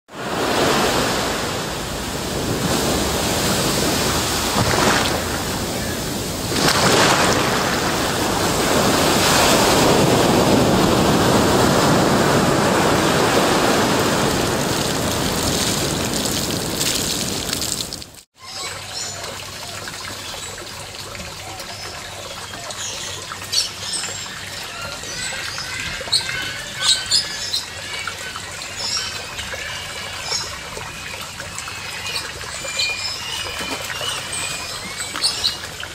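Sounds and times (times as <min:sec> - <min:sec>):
loud rushing water: 0:00.1 - 0:18.2
water trickling: 0:14.2 - 0:35.9.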